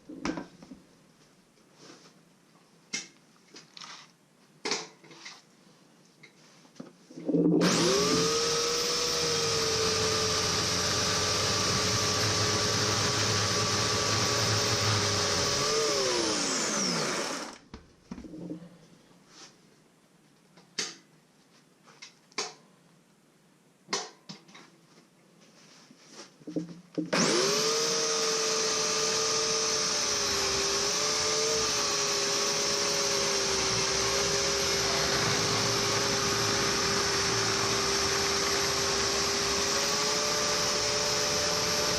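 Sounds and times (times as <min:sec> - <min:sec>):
electric chainsaw running: 0:07.6 - 0:17.6, 0:27.1 - 0:41.9.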